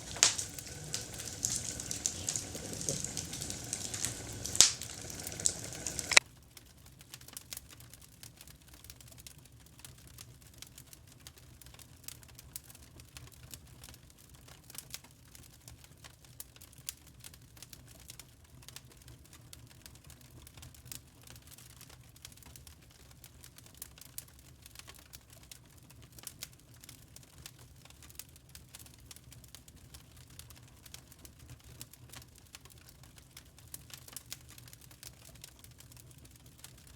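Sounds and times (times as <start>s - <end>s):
campfire crackling and popping: 0.0s - 6.2s.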